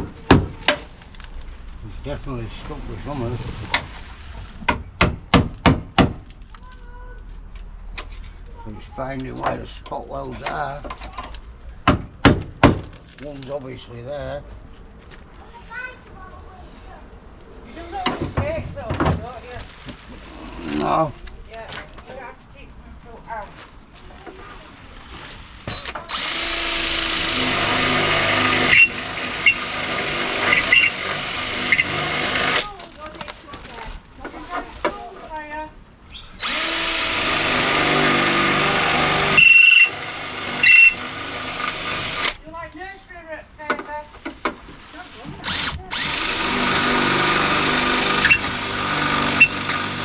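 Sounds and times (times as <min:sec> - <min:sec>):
high squeaks from drill bit: 0:25.7 - 0:32.6, 0:36.4 - 0:42.4, 0:45.5 - 0:50.0
electric drill boring into steel: 0:26.1 - 0:32.7, 0:36.4 - 0:42.4, 0:45.4 - 0:50.0.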